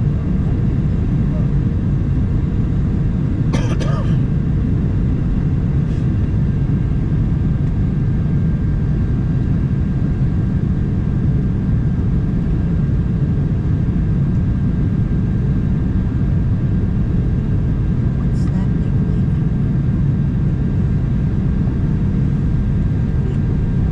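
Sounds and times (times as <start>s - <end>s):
jet engines rumbling: 0.0s - 23.9s.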